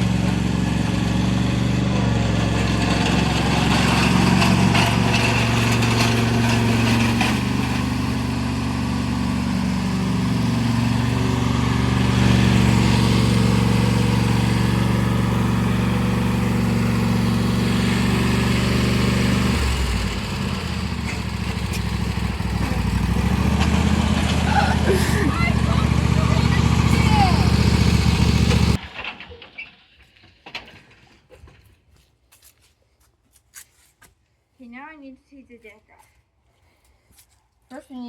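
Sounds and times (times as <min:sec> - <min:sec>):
lawn tractor engine running: 0:00.0 - 0:29.2.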